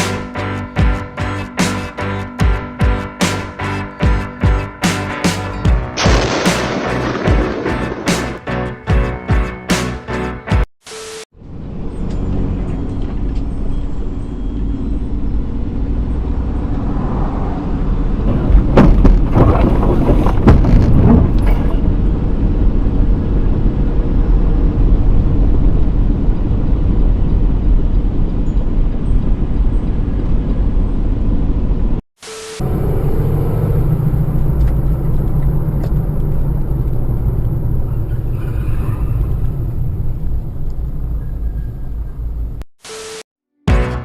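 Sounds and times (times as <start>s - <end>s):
vehicle engine rumbling: 11.4s - 32.0s, 32.6s - 42.7s.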